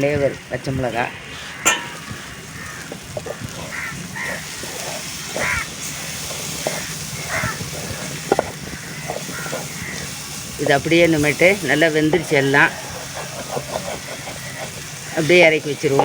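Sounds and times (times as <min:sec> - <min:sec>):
food sizzling in a pan: 0:00.0 - 0:16.0
crows cawing: 0:01.3 - 0:05.9, 0:06.6 - 0:10.5, 0:12.2 - 0:16.0.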